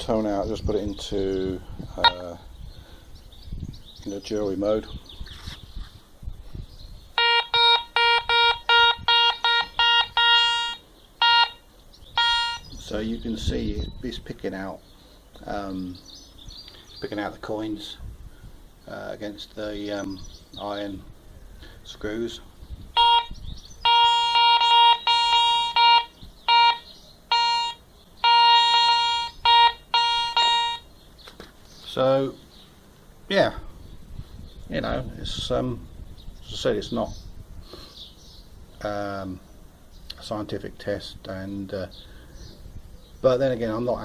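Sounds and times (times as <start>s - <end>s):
metal detector beeping: 7.2s - 11.6s, 12.2s - 12.7s, 23.0s - 30.9s.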